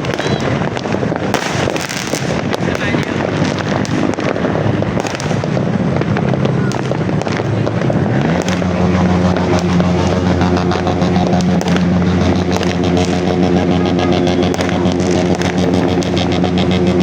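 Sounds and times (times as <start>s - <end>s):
fireworks crackling: 0.0s - 17.0s
motor engine running: 0.0s - 17.0s.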